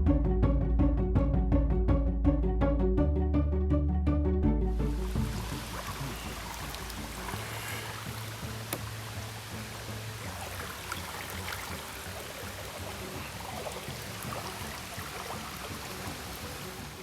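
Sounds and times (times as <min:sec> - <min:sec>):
creek water trickling and lapping: 0:04.8 - 0:17.0
small drips and ticks: 0:05.2 - 0:17.0.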